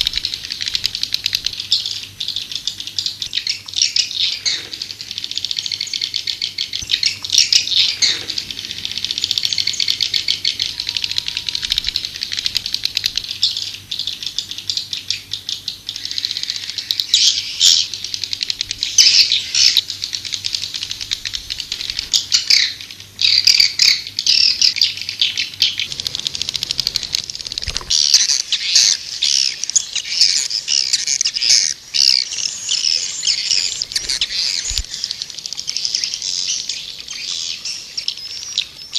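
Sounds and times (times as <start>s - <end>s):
swiftlets twittering: 4.9s - 13.9s, 25.8s - 38.9s.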